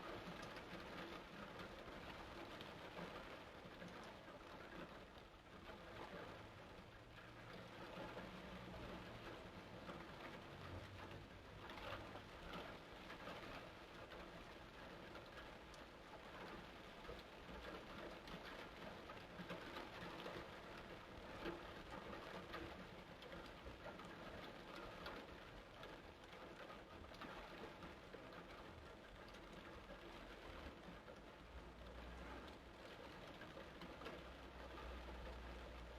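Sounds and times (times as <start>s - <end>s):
faint steady rain: 0.0s - 35.9s.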